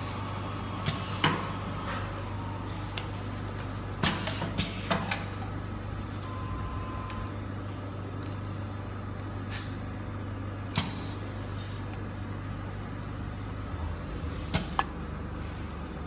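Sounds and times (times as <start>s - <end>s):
machine motor hum: 0.0s - 8.4s.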